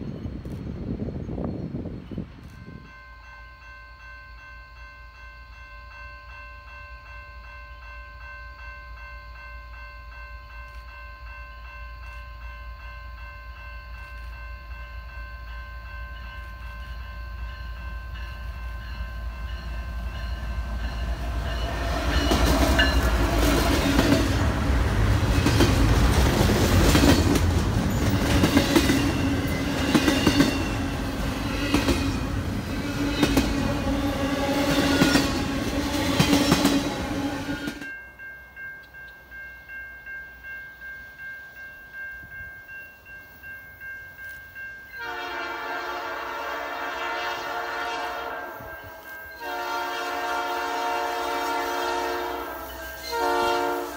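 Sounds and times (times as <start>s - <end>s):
railroad crossing bell ringing: 0.0s - 53.9s
train wheels clicking on rails: 13.6s - 38.0s.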